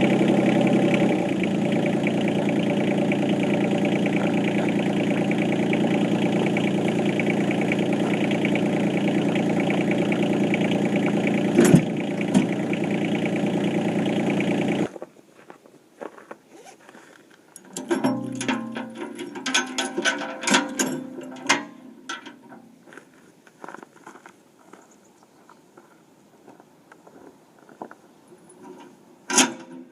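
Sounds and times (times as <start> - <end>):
tractor diesel engine running: 0.0 - 14.9, 17.7 - 22.6
metallic clicking and clanking: 2.3 - 13.4, 17.6 - 22.6, 28.5 - 29.9.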